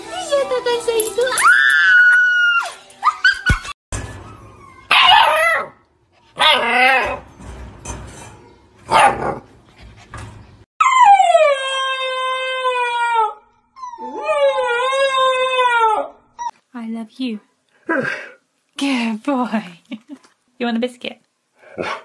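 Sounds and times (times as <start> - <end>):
puppies howling: 10.8 - 16.5.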